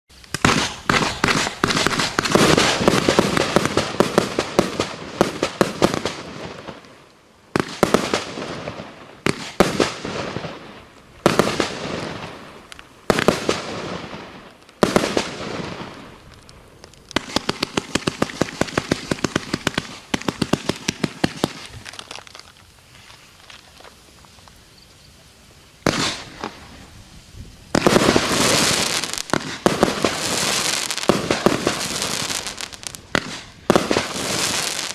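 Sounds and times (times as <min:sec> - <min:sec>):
firework bangs and crackling: 0:00.1 - 0:34.9
rapid firework shots: 0:00.3 - 0:06.6, 0:14.8 - 0:16.0, 0:17.2 - 0:21.7, 0:25.8 - 0:26.6, 0:27.8 - 0:34.9.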